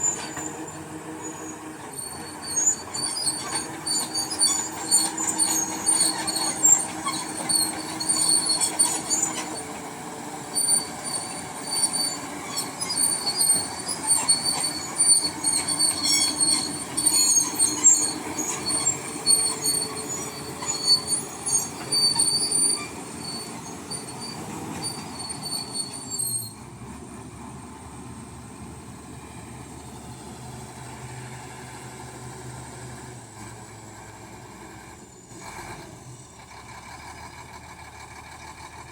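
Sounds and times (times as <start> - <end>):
crawler tracks squealing and clanking: 0.0 - 27.0
diesel engine running: 0.0 - 38.9.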